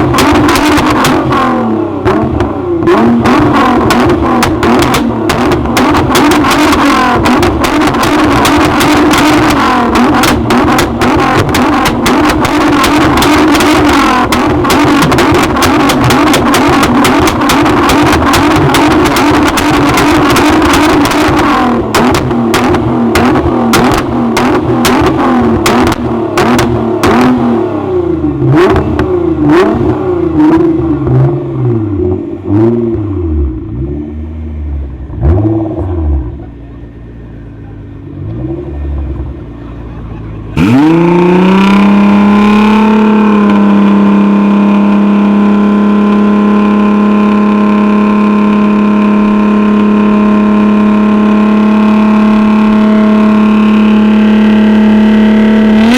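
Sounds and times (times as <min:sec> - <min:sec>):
exhaust pops and crackles: 0:00.0 - 0:01.4, 0:02.0 - 0:27.6, 0:28.5 - 0:30.0
car engine revving: 0:00.0 - 0:55.9.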